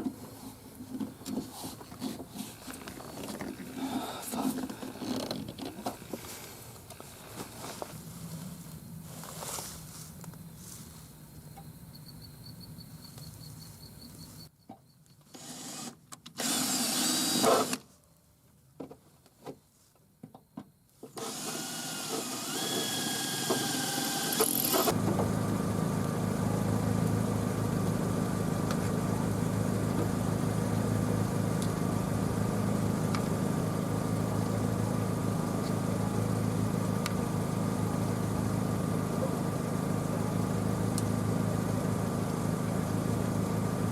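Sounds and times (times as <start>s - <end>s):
truck engine idling: 24.9s - 43.9s.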